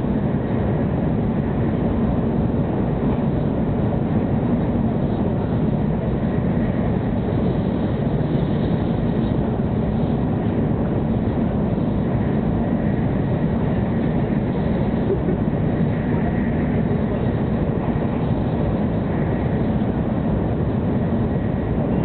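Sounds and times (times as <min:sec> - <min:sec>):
train rumble inside cabin: 0:00.0 - 0:22.0.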